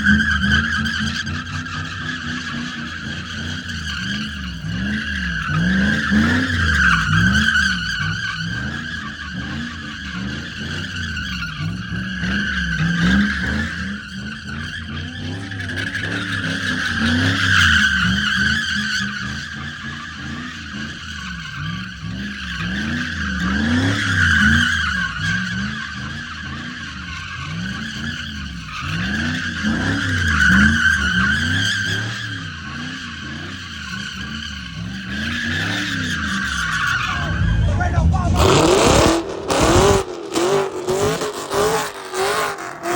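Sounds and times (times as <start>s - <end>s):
tires screeching: 0.0s - 42.9s
engine revving: 34.7s - 42.9s.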